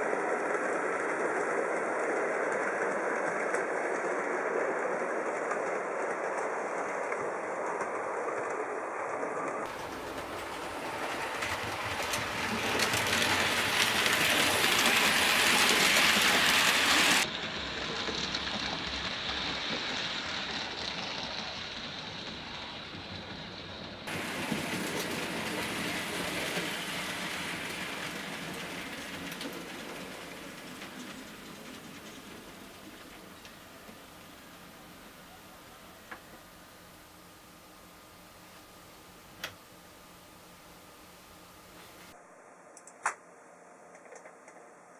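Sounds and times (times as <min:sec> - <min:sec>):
model trains rolling hiss: 0:07.7 - 0:37.2.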